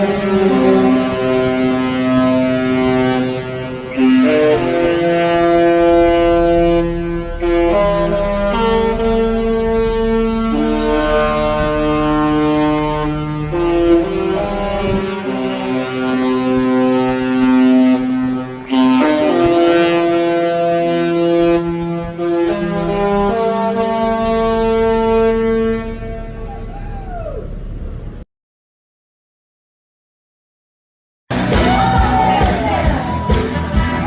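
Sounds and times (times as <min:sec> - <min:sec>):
ship horn playing a tune: 0:00.0 - 0:27.7.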